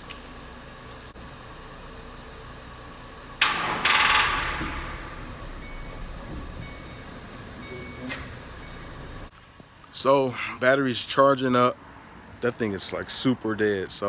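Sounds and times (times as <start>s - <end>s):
car starter cranking: 1.8s - 9.3s.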